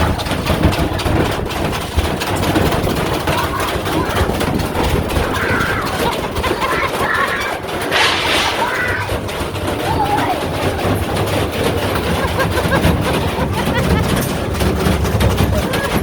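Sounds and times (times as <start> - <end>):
washing machine spinning and knocking: 0.0 - 16.0
sharp bang: 7.9 - 9.4.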